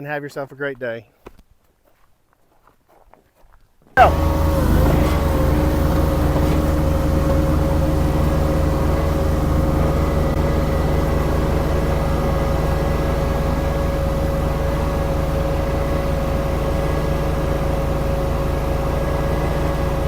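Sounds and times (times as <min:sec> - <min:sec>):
steady high tone: 0:04.0 - 0:04.8
skid steer engine running: 0:04.0 - 0:20.0.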